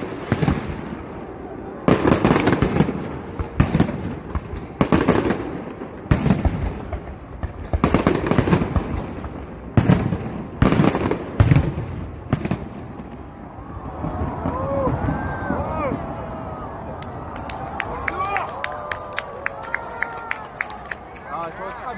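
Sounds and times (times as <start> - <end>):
fireworks crackling: 0.0 - 16.2
fireworks bangs: 0.0 - 17.0.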